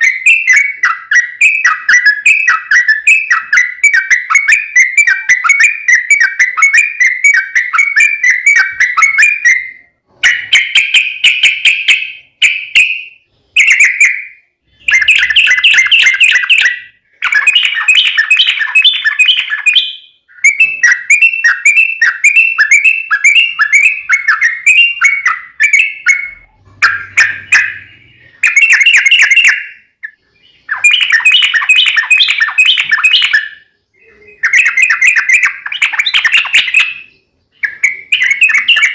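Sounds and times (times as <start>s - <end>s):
bulbul singing rapid song: 0.0s - 38.9s.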